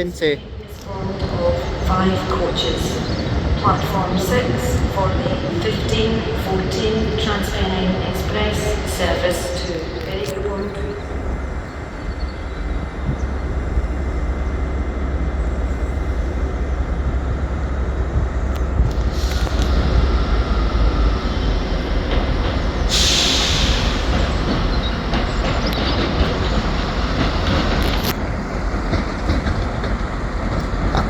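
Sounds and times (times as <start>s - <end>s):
train rumbling: 0.0s - 31.0s
air brake hiss: 22.9s - 24.2s.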